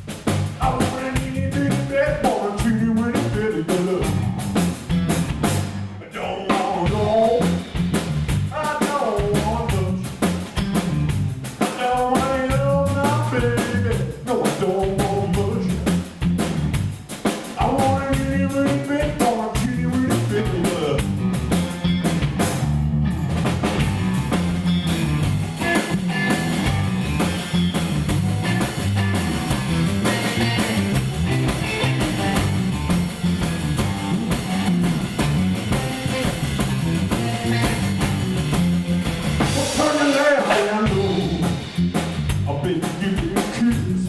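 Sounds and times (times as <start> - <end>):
steady bass rhythm: 0.0 - 6.0, 6.9 - 44.0
drum kit: 0.0 - 44.0
guitar: 0.0 - 44.0.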